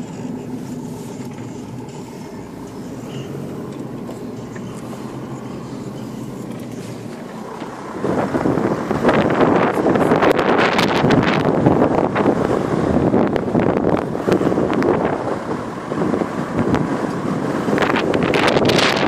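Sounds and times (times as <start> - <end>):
vehicle engine running: 0.0 - 19.0
wind buffeting microphone: 7.9 - 19.0.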